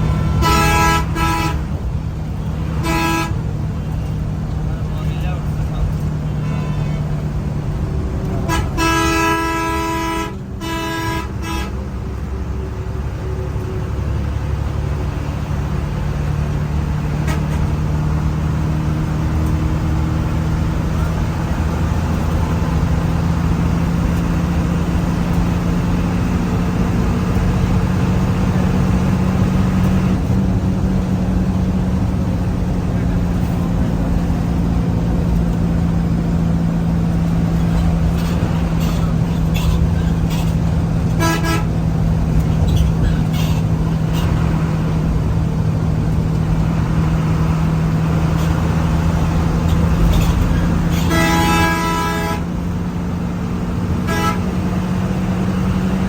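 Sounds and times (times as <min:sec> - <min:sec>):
horn honking: 0:00.0 - 0:04.2, 0:05.8 - 0:07.3, 0:08.2 - 0:12.6, 0:37.4 - 0:44.9, 0:48.2 - 0:53.0, 0:53.8 - 0:55.0
vehicle engine drone: 0:00.0 - 0:56.0.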